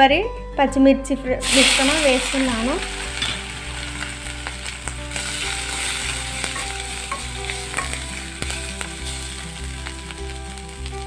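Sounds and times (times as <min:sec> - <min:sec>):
food sizzling in hot oil: 0:01.4 - 0:11.0
spatula clicking and scraping pan: 0:05.3 - 0:08.9.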